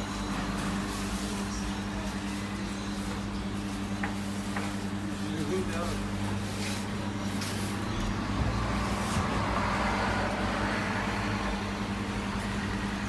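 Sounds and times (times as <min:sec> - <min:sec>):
road vehicle humming: 0:07.7 - 0:13.0.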